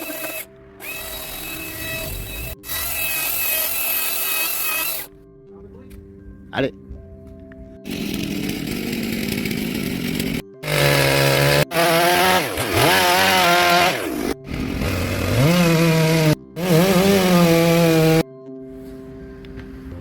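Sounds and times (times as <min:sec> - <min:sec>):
chainsaw cutting wood: 0:00.0 - 0:05.1, 0:07.8 - 0:18.3.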